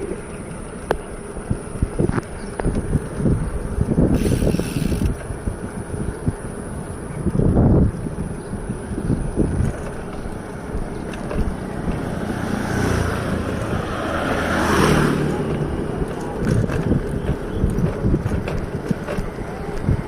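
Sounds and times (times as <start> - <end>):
wind rumbling on microphone: 0.0 - 20.0
vehicle passing: 9.3 - 20.0.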